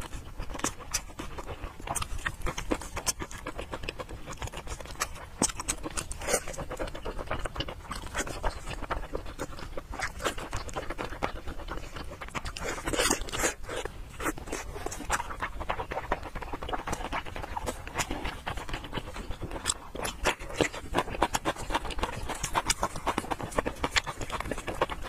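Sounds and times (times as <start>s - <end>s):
wet chewing and lip-smacking: 0.0s - 25.0s.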